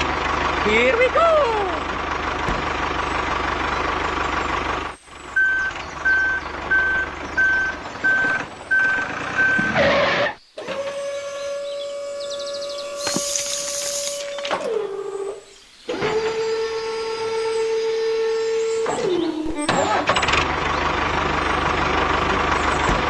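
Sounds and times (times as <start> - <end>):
vehicle engine: 0.0 - 23.0
reversing alarm beeping: 5.4 - 10.3
hiss: 13.0 - 14.4.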